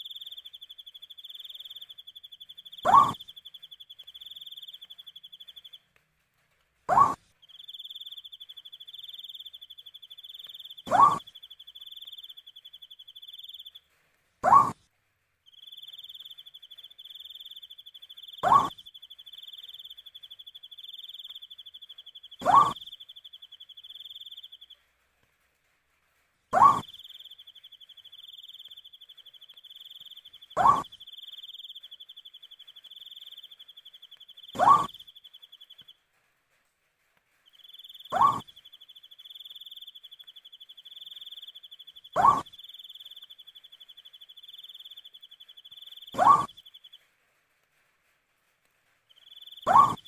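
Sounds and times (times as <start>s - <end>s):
owl hooting: 0.0s - 5.7s, 6.9s - 13.8s, 14.4s - 14.8s, 15.5s - 24.7s, 26.5s - 35.9s, 37.5s - 47.0s, 49.1s - 50.0s
cricket trilling: 15.5s - 24.7s, 26.6s - 35.8s, 37.6s - 47.0s, 49.2s - 50.0s.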